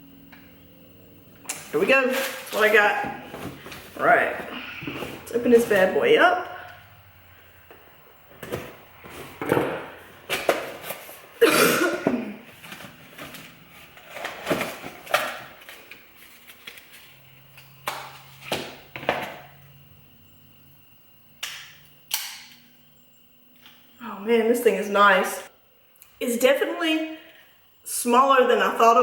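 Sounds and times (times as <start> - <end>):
cardboard packaging rustling: 2.0 - 5.9, 12.5 - 17.2.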